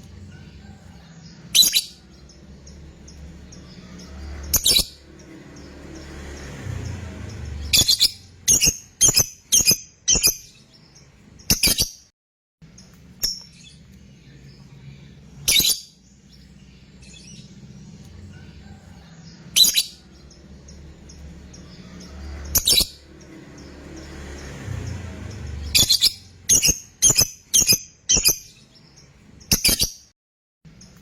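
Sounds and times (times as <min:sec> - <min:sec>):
lovebird shrill calls: 0:01.5 - 0:02.0, 0:04.5 - 0:05.0, 0:25.7 - 0:28.5.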